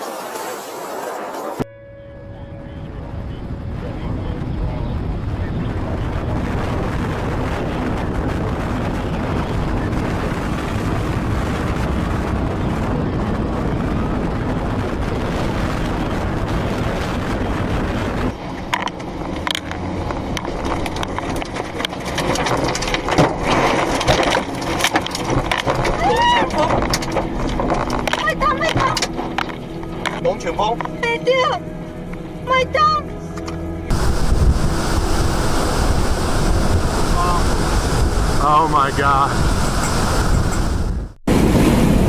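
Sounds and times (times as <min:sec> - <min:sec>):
avalanche rushing: 0:00.0 - 0:01.6, 0:02.8 - 0:31.4, 0:33.9 - 0:42.0
wind buffeting microphone: 0:02.2 - 0:33.0, 0:33.9 - 0:42.0.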